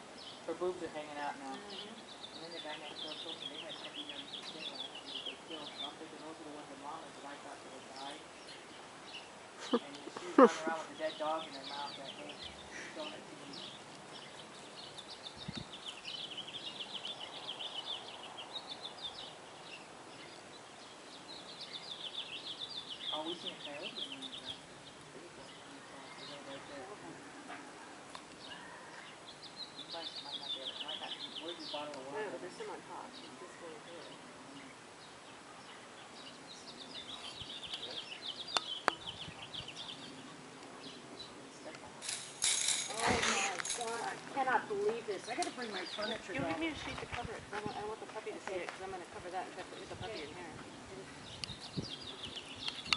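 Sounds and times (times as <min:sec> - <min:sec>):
birds chirping: 0:00.0 - 0:52.9
faint outdoor hiss: 0:00.0 - 0:52.9.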